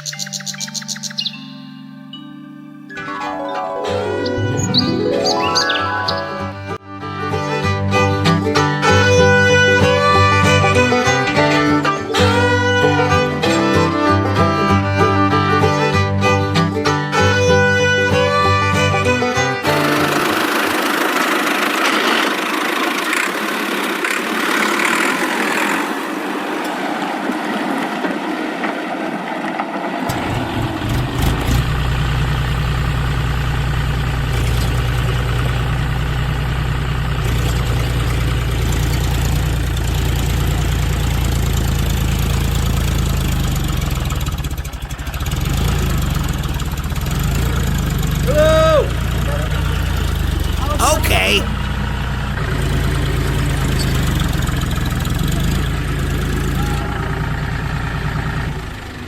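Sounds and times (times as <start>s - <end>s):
engine idling with chugging: 19.6s - 25.8s, 30.1s - 50.6s, 51.5s - 59.0s.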